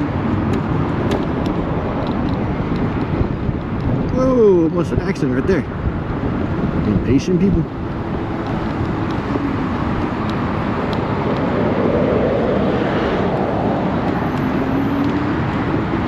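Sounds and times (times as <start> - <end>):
wind and road noise: 0.0 - 16.0
vehicle passing: 5.4 - 16.0.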